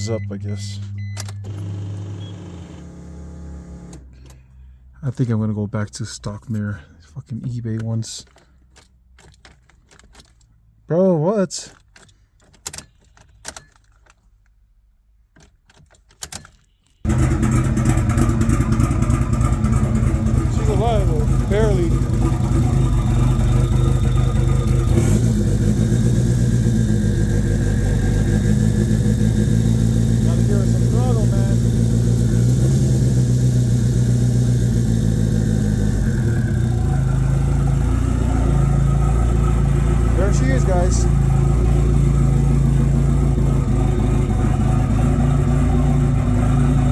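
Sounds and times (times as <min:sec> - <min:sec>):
car engine starting and running: 0:00.0 - 0:46.9
light clicks and key rattles: 0:07.2 - 0:10.6, 0:11.6 - 0:17.0.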